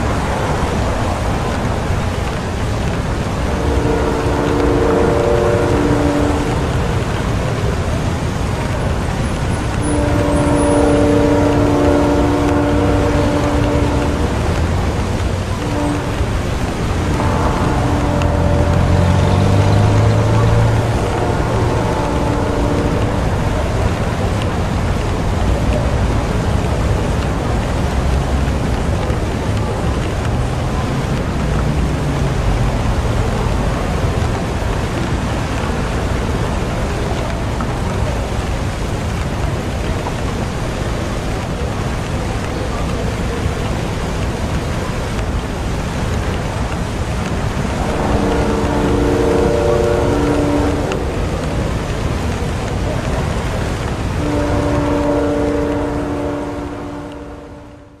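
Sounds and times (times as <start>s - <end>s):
low traffic rumble: 0.0s - 58.0s
steady rain falling: 0.0s - 58.0s
low rumble: 11.3s - 30.4s.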